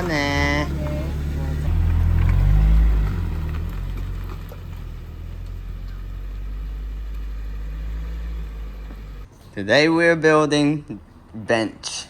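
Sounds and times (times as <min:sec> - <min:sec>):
car engine rumbling: 0:00.0 - 0:09.4.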